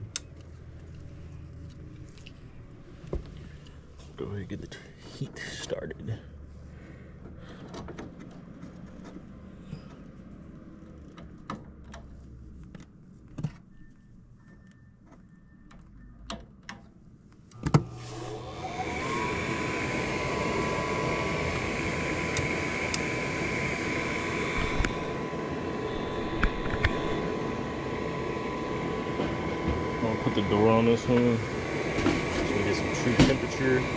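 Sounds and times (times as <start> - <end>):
furnace motor whirring: 17.5 - 33.9.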